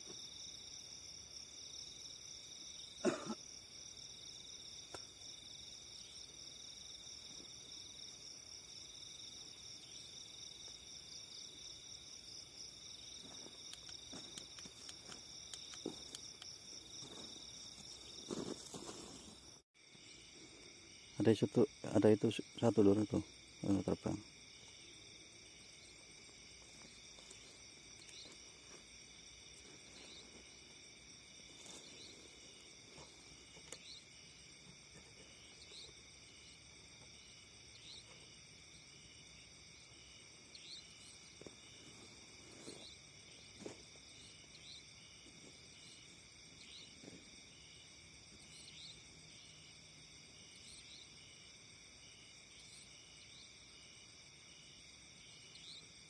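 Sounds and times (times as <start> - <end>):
crickets and insects trilling: 0.0 - 56.0.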